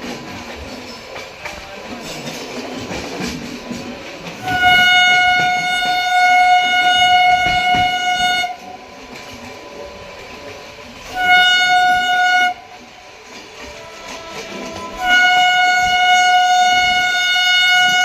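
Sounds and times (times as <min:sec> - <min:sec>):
moving train running noise: 0:00.0 - 0:18.0
train horn blasts: 0:04.4 - 0:08.7, 0:11.0 - 0:12.8, 0:13.6 - 0:18.0.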